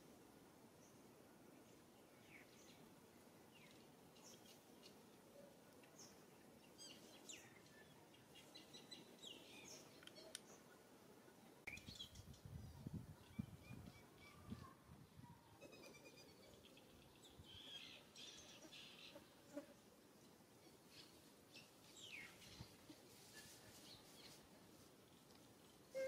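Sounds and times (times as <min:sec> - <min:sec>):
faint bird chirps: 0:03.6 - 0:19.2.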